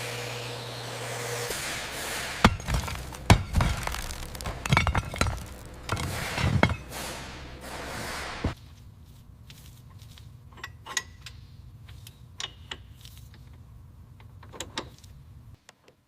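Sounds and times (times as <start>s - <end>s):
sharp knocks and clinks: 2.4s - 7.5s.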